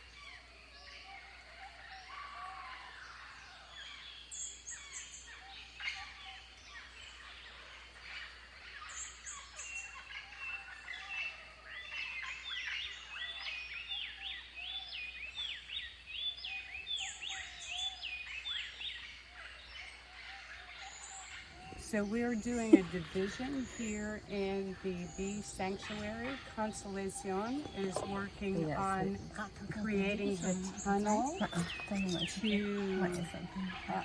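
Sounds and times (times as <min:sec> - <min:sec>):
birds chattering with whistles: 0:00.0 - 0:34.0
high rasping bird trill: 0:21.4 - 0:34.0.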